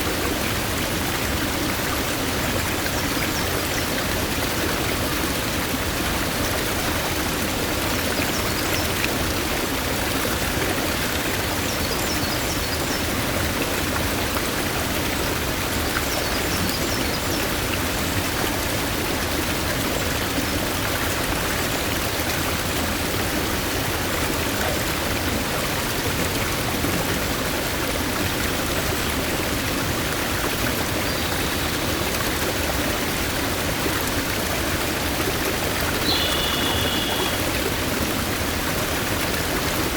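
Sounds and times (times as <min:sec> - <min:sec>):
stream rushing over rocks: 0:00.0 - 0:39.9
brief bird call: 0:36.0 - 0:37.4
faint high bird chirps: 0:36.0 - 0:37.4.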